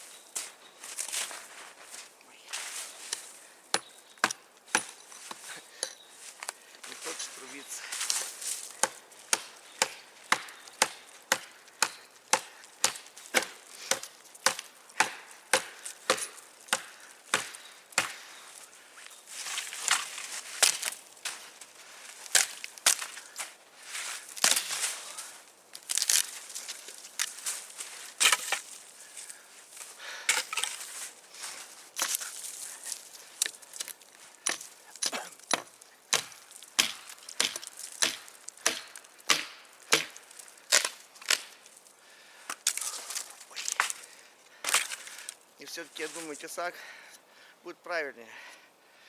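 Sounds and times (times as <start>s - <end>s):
blade chopping into wood: 8.8s - 18.2s, 24.4s - 24.9s, 34.5s - 41.6s.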